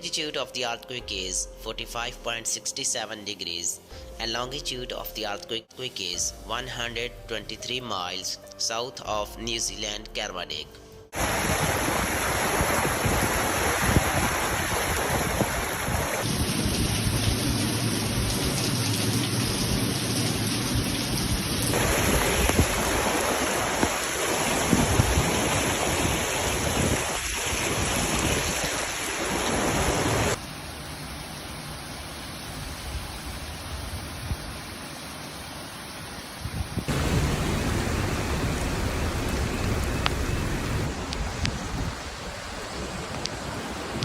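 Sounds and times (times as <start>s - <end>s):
heavy rain rushing: 11.2s - 44.0s
low rumbles: 36.8s - 43.3s.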